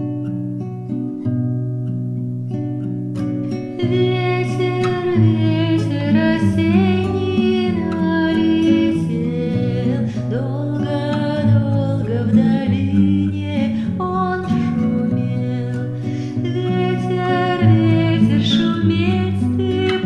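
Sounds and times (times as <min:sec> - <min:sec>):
acoustic guitar: 0:00.0 - 0:20.0.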